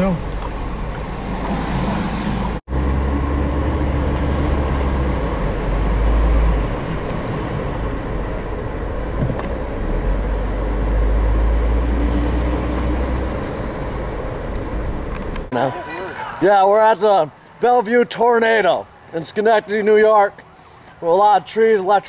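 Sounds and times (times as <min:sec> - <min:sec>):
car road and engine rumble: 0:00.0 - 0:15.6.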